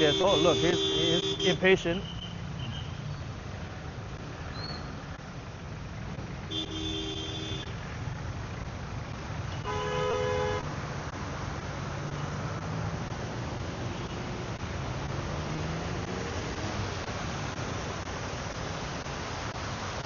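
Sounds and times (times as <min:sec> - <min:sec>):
vehicle horns honking: 0:00.0 - 0:03.0, 0:06.5 - 0:07.7, 0:09.5 - 0:10.7
low traffic noise: 0:00.0 - 0:20.0.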